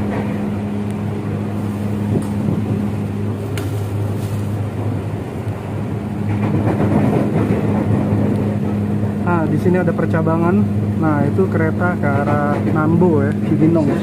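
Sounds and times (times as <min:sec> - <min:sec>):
electric train rumbling: 0:00.0 - 0:14.0.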